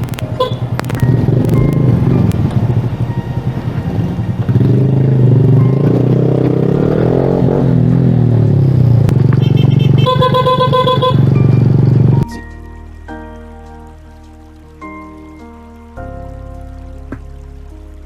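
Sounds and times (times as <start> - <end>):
motorcycle engine revving: 0.0 - 12.2.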